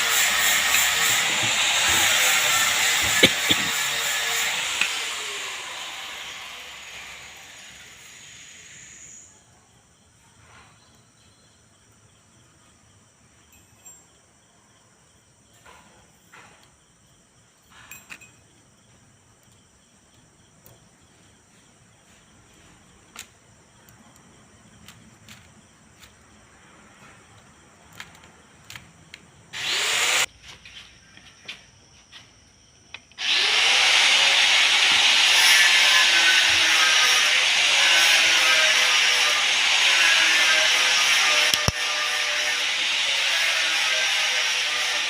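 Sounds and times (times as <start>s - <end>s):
hiss: 0.0s - 9.4s.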